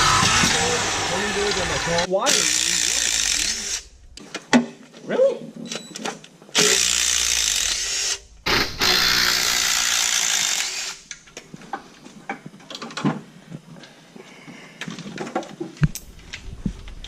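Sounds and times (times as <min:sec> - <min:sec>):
power tool bursts: 0:00.0 - 0:04.0, 0:06.6 - 0:11.1.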